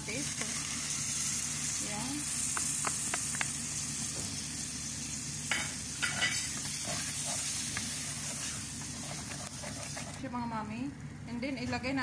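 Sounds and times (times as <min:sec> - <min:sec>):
tomato sizzling in hot oil: 0:00.0 - 0:10.2
wooden spoon scraping pot: 0:06.0 - 0:10.3.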